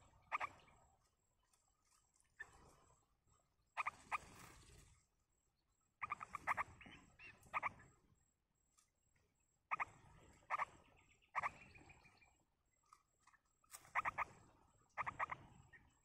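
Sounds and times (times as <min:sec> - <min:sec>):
rustling of nest and feathers: 0:00.0 - 0:03.1, 0:03.8 - 0:05.1.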